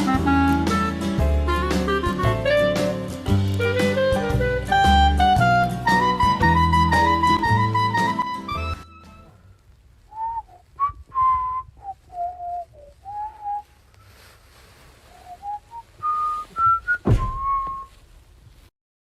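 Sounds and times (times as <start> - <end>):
person whistling a tune: 0.0 - 8.9, 10.1 - 13.7, 15.2 - 17.9
sharp knock: 17.0 - 17.7.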